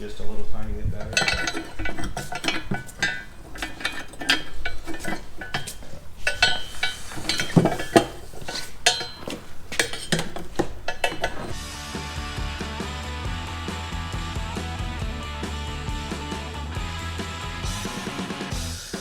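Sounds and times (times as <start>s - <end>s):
metal pipes clinking together: 0.0s - 11.6s.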